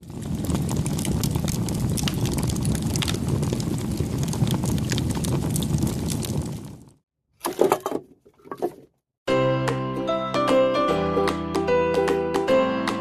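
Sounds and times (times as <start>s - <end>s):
campfire crackling and popping: 0.0s - 7.0s.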